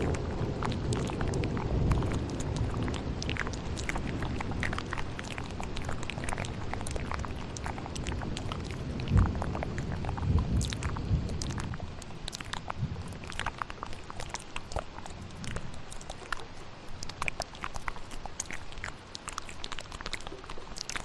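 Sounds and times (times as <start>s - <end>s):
low thunder rumble: 0.0s - 13.6s
steady rain: 0.0s - 21.0s
wet mouth clicks and smacks: 0.0s - 21.0s.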